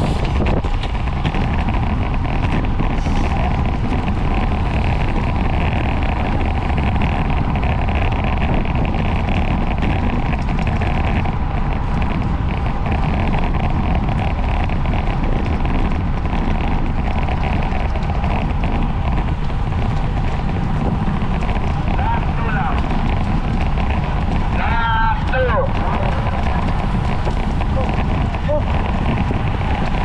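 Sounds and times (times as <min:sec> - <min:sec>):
bicycle road rumble: 0:00.0 - 0:30.0
wind rush over microphone: 0:00.0 - 0:30.0.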